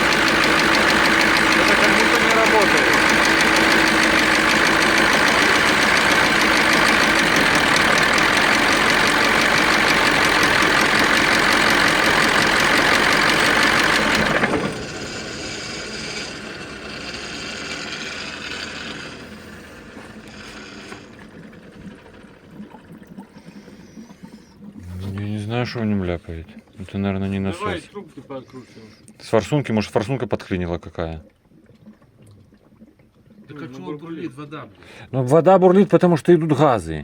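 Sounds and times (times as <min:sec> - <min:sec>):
diesel truck engine knocking: 0:00.0 - 0:22.4.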